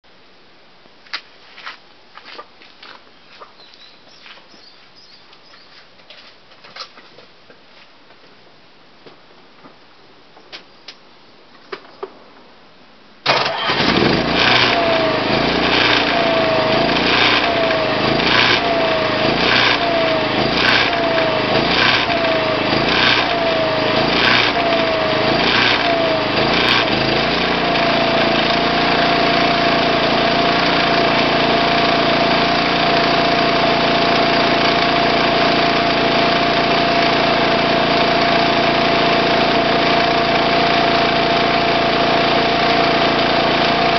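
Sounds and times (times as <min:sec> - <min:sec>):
generator running: 0:13.2 - 0:43.9.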